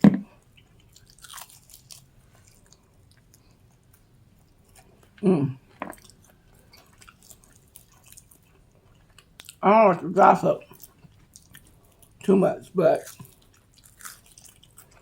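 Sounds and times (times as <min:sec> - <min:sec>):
chewing fried chicken: 0:00.3 - 0:15.0
person making vocal sound: 0:05.2 - 0:05.6, 0:09.6 - 0:10.6.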